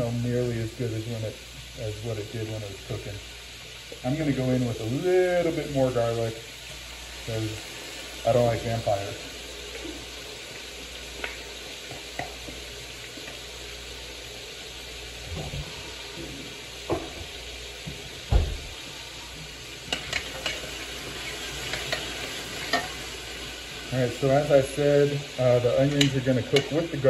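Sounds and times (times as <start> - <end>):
garlic and onions sizzling in oil: 0.0 - 27.0.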